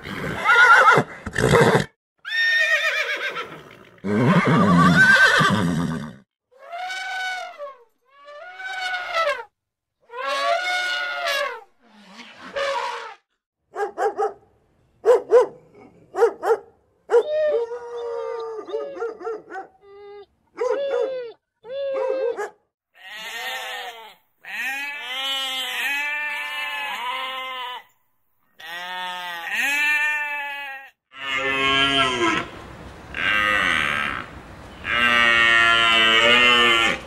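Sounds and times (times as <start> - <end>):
dog barking: 13.7 - 14.4, 15.0 - 17.3, 18.7 - 19.8, 20.6 - 21.1, 22.0 - 22.6
sheep bleating: 23.0 - 27.9, 28.6 - 32.5, 33.2 - 37.0
cow mooing: 31.1 - 32.5, 33.1 - 37.0.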